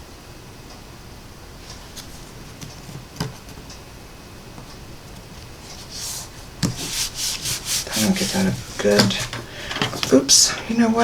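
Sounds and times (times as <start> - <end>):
cardstock ticks and taps: 1.7 - 3.8.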